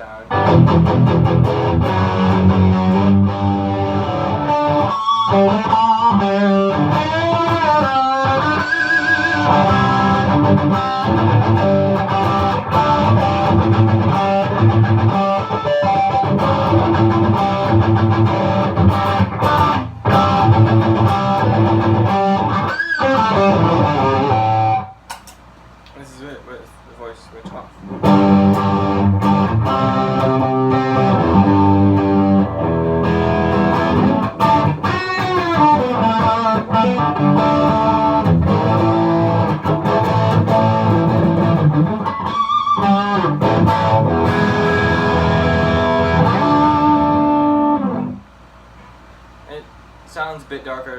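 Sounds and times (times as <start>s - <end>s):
distorted electric guitar riffing: 0.0s - 25.0s, 27.9s - 48.2s.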